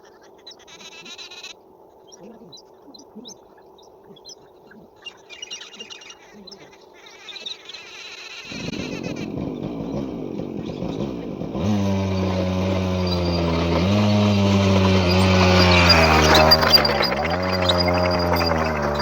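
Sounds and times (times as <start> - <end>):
motorcycle engine running: 8.5 - 19.0.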